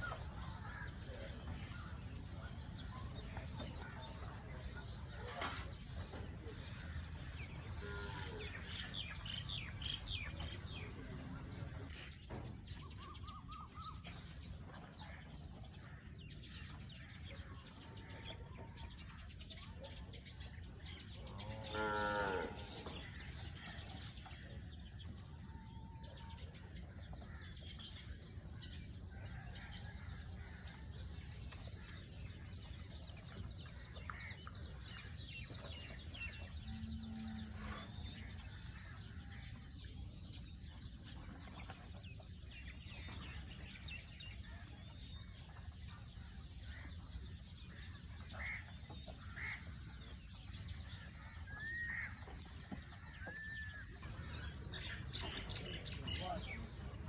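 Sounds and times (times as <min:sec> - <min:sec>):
cow mooing: 0:21.5 - 0:22.8.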